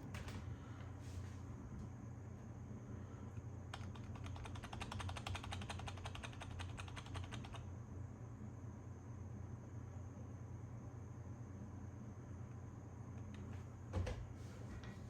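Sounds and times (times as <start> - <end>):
computer keyboard typing: 3.7 - 7.7.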